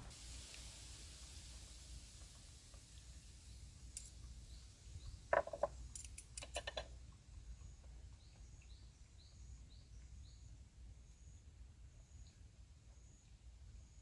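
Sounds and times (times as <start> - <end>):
sharp clicks and knocks: 5.3 - 7.0.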